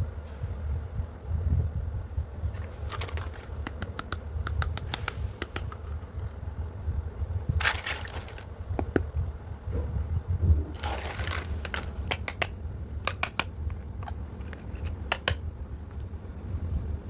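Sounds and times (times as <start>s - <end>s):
packaging rustling: 2.5s - 6.4s, 7.5s - 9.0s, 10.7s - 15.4s
plastic toy pieces clicking: 2.6s - 6.3s, 7.6s - 9.0s, 10.8s - 15.4s.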